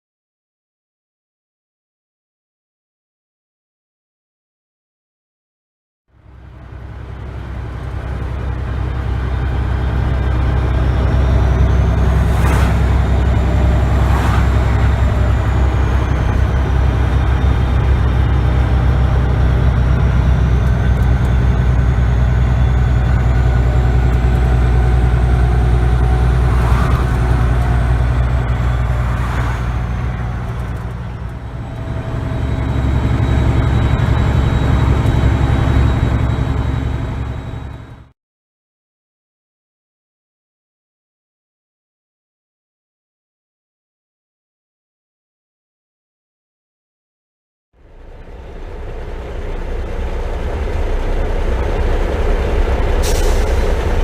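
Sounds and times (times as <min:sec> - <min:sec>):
diesel truck engine running: 0:06.2 - 0:38.1, 0:47.8 - 0:54.0.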